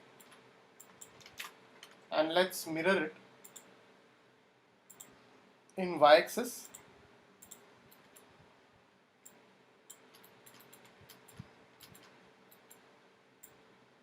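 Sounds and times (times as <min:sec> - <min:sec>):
faint computer mouse clicks: 0:04.9 - 0:05.2, 0:07.4 - 0:08.3, 0:09.2 - 0:12.8.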